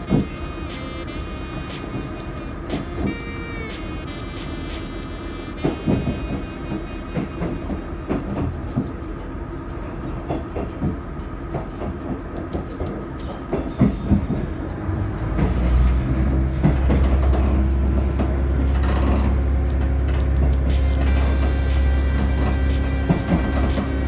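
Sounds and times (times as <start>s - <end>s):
low engine drone: 0.0s - 24.0s
train rumble: 0.0s - 24.0s
train wheels clicking over rail joints: 0.0s - 24.0s.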